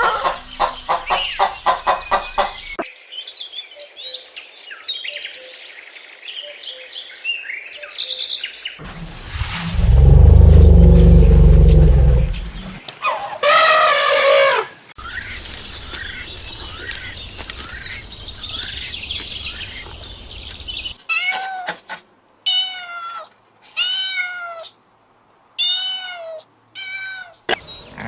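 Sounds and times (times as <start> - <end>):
faint chirps: 8.8 - 12.8.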